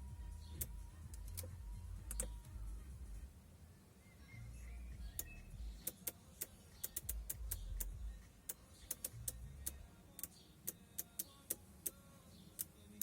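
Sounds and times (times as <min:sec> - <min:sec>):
faint low rumble: 0:00.0 - 0:05.8, 0:07.1 - 0:08.3
sharp clicks: 0:02.1 - 0:02.4, 0:05.1 - 0:12.0.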